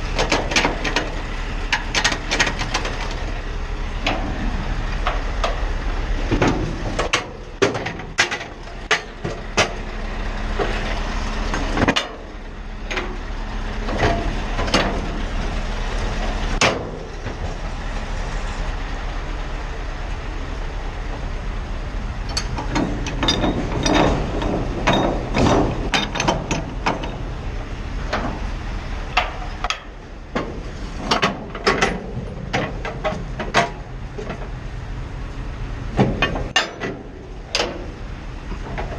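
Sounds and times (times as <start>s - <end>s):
truck engine droning: 0.0s - 38.9s
knocks and rattles: 0.2s - 3.4s, 6.3s - 9.8s, 22.3s - 27.3s, 29.1s - 34.5s, 36.0s - 38.9s.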